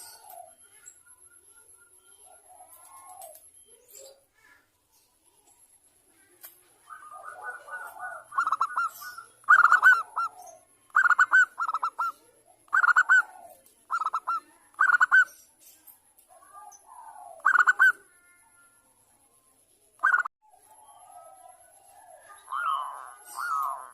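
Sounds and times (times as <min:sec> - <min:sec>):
dove cooing: 0:00.0 - 0:00.8, 0:02.1 - 0:03.5, 0:06.7 - 0:15.3, 0:16.3 - 0:18.4, 0:20.0 - 0:23.9.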